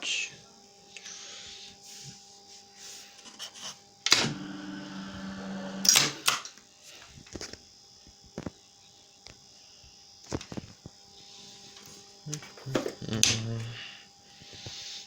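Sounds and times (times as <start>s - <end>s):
drive motor humming: 4.0s - 6.2s.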